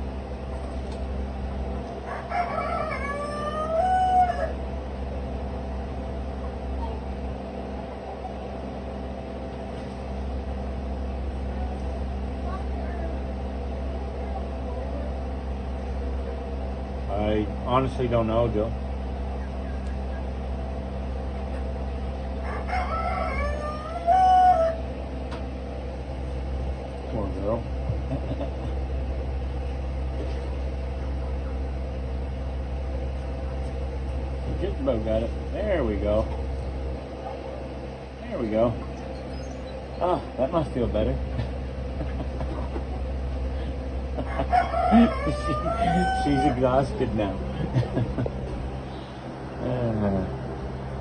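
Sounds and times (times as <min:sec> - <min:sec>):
steady low hum: 0:00.0 - 0:51.0
rooster crowing: 0:02.0 - 0:04.7, 0:22.4 - 0:24.9, 0:44.2 - 0:47.0.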